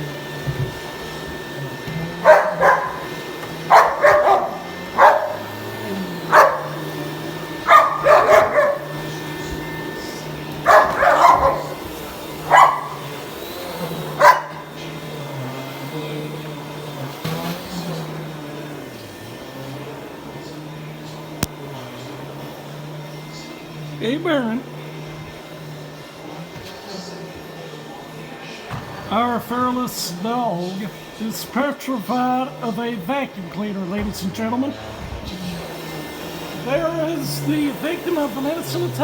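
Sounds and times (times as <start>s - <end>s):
vacuum cleaner motor humming: 0.0s - 39.0s
dog barking: 2.1s - 5.6s, 6.2s - 9.1s, 10.5s - 13.1s, 14.1s - 14.7s.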